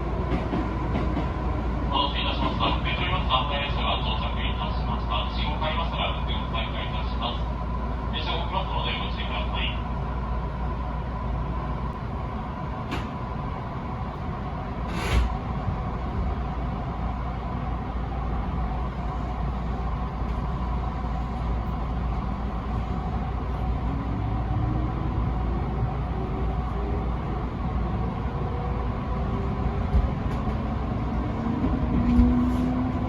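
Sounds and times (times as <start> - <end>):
train rumbling: 0.0 - 33.0
brief sharp burst of noise: 14.9 - 15.3.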